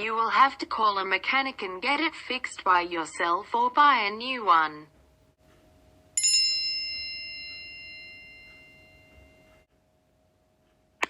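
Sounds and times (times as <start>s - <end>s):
bright chime: 6.2s - 9.7s.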